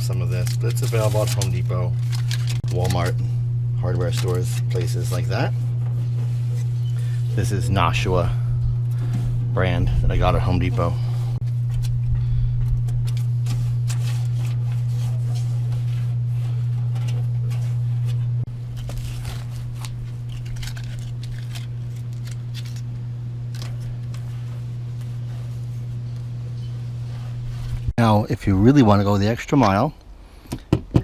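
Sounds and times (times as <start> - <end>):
foil tape crinkling: 0.0 - 5.5, 11.6 - 16.2, 17.0 - 26.3
steady low hum: 0.0 - 31.0.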